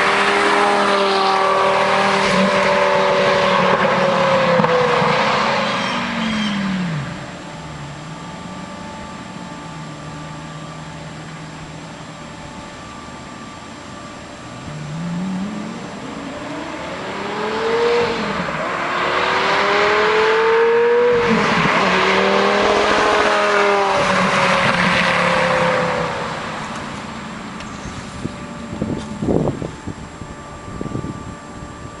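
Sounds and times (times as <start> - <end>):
sports car accelerating past: 0.0 - 8.5, 14.6 - 28.0.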